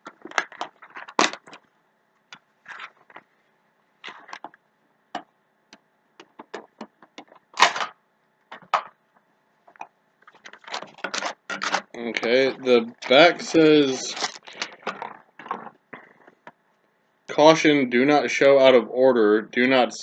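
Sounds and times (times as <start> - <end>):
packaging clicks and crinkles: 0.0 - 1.7, 9.7 - 12.3, 14.0 - 16.4.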